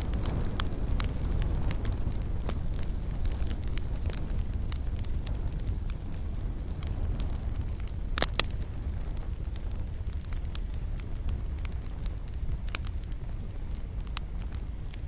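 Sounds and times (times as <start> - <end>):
fireplace fire crackling: 0.0 - 15.0
low rumble of flames: 0.0 - 15.0.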